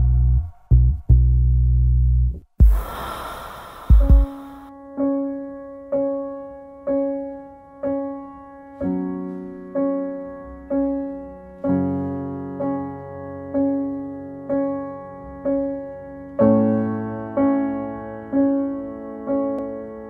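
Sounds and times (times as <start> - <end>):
slow piano music: 0.0 - 2.5, 3.8 - 20.0
rush of noise with low thud: 2.6 - 4.7.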